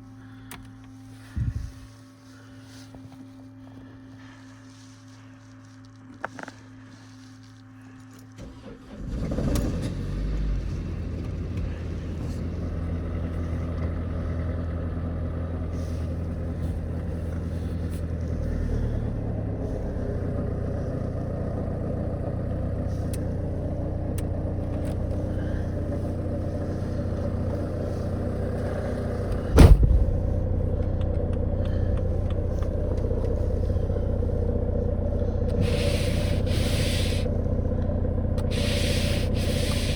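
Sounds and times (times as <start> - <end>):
diesel engine idling: 0.0 - 39.9
diesel engine cranking and starting: 8.1 - 39.9
loud thump: 29.5 - 30.2.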